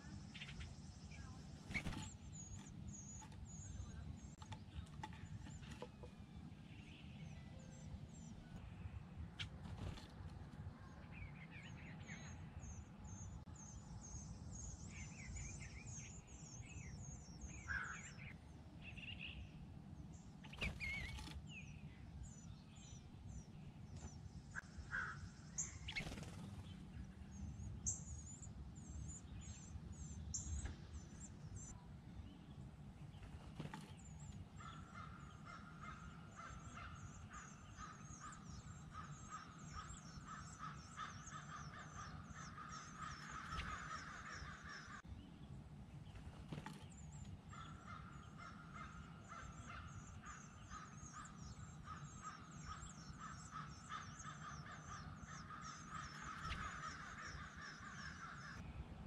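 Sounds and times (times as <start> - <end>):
steady bird trill: 0.0 - 8.5, 20.4 - 23.5, 24.2 - 26.7, 33.2 - 45.1, 46.2 - 58.6
songbirds chirping: 0.0 - 59.0
bird wings fluttering: 1.7 - 2.7, 9.4 - 10.5, 20.5 - 21.4, 25.9 - 26.7, 33.2 - 34.0, 46.1 - 47.0
harsh bird calls: 17.4 - 18.4, 33.2 - 45.1, 46.1 - 58.6.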